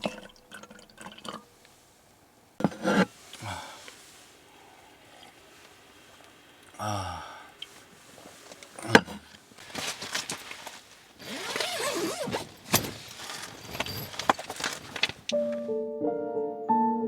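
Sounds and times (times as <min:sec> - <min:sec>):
camping gear clicking and clinking: 0:09.6 - 0:15.4.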